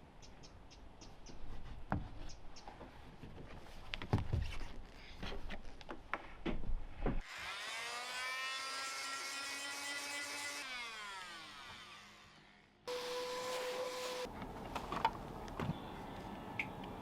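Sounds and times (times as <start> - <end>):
power tool whining: 12.9 - 14.3.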